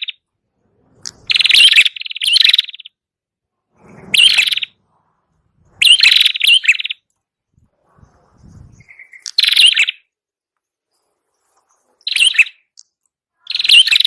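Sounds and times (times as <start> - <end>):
bird rapid trills: 0.0 - 0.3, 1.0 - 3.0, 3.8 - 4.9, 5.7 - 10.1, 10.9 - 12.8, 13.4 - 14.0.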